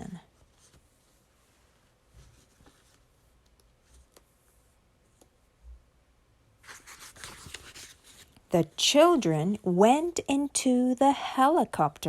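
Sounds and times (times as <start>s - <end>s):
soft rustling: 0.0s - 5.9s, 6.6s - 8.6s.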